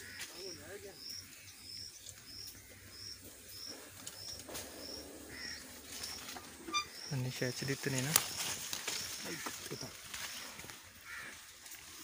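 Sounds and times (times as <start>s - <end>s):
small bird calling: 0.0s - 7.3s.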